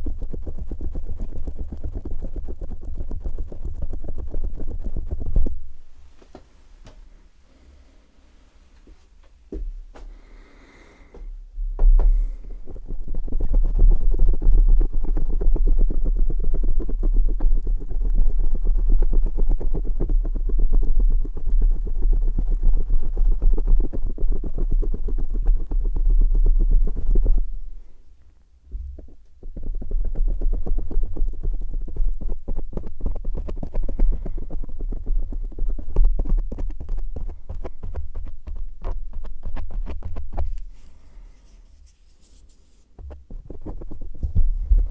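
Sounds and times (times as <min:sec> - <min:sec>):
low thumps on microphone: 0:00.0 - 0:07.2, 0:08.8 - 0:10.3, 0:11.1 - 0:27.8, 0:28.6 - 0:44.9
wet crackling on microphone: 0:00.0 - 0:07.2, 0:28.8 - 0:44.9.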